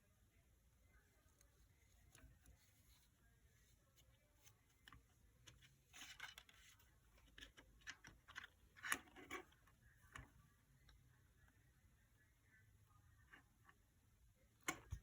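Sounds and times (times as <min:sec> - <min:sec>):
faint clicks taps and scrapes: 0:01.2 - 0:11.6, 0:13.0 - 0:13.9.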